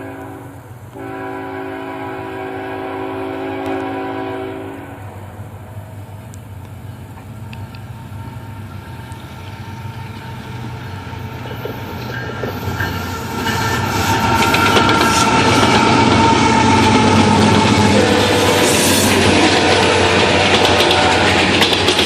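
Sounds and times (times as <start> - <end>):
diesel locomotive rumble: 0.0 - 22.0
wheels clicking over rail joints: 6.0 - 22.0.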